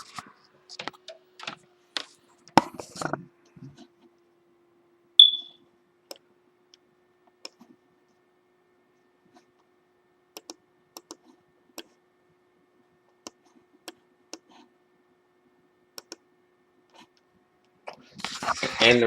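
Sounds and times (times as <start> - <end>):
short high beep: 5.2 - 5.6
keyboard and mouse clicks: 10.4 - 11.9, 16.0 - 16.2.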